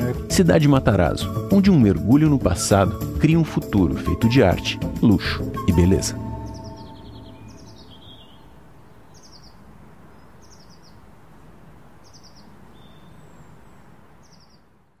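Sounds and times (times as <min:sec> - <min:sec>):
steady low hiss: 0:00.0 - 0:15.0
bird trilling: 0:04.7 - 0:09.6.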